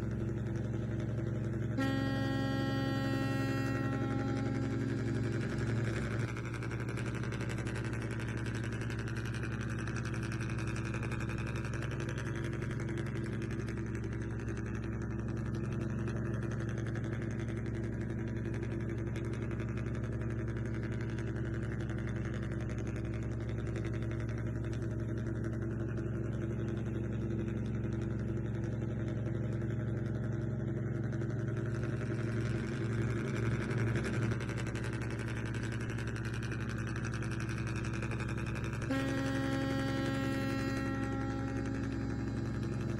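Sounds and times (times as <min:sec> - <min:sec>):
small motor humming: 0:00.0 - 0:07.5, 0:38.0 - 0:42.9.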